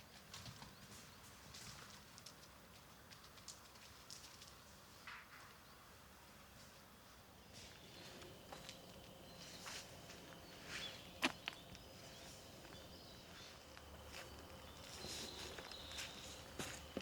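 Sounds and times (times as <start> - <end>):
small birds chirping: 7.4 - 17.0
footsteps on forest trail: 7.5 - 17.0.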